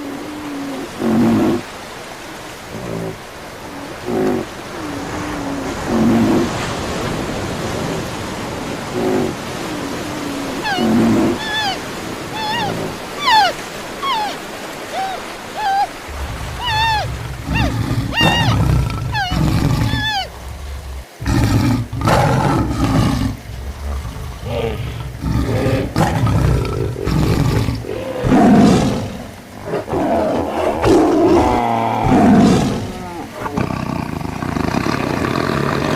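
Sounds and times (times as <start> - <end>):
animal roars: 10.3 - 11.8, 12.4 - 35.9
short high animal calls: 10.6 - 20.4.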